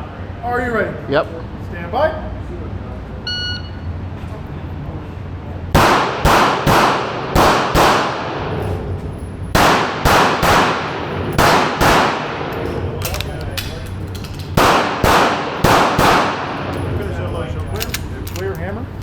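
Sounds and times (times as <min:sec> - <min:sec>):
pistol shots: 0:05.8 - 0:08.6, 0:09.5 - 0:16.8.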